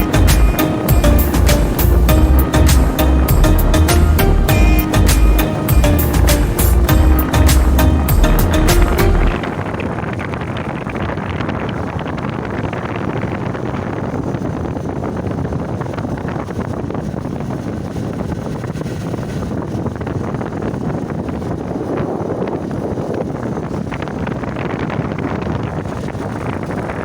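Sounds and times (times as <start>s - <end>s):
vehicle running: 0.0s - 9.8s
wind rumbling on microphone: 0.0s - 27.0s.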